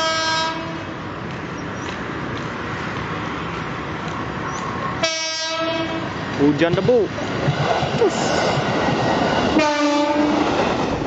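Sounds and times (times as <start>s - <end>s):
train horn: 0.0s - 0.9s, 5.0s - 6.1s, 9.6s - 10.4s
train rumbling along track: 0.0s - 11.0s.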